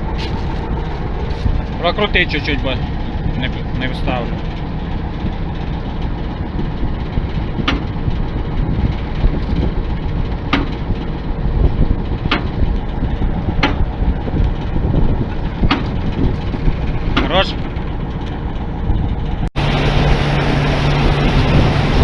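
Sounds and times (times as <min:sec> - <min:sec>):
combine harvester engine running: 0:00.0 - 0:22.0.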